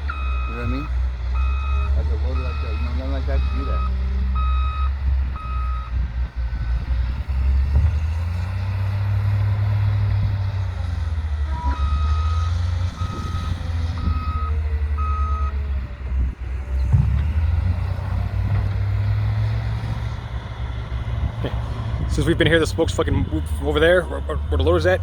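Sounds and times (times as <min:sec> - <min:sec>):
low engine rumble: 0:00.0 - 0:25.0
reversing alarm beeping: 0:00.1 - 0:06.0, 0:11.5 - 0:15.6.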